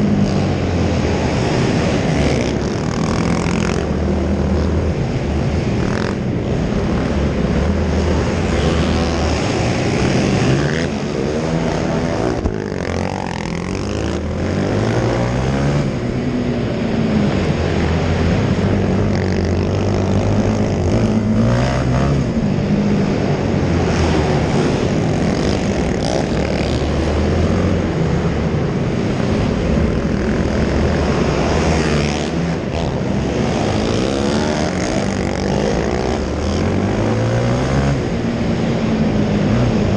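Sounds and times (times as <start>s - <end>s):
quad engines revving: 0.0s - 39.9s.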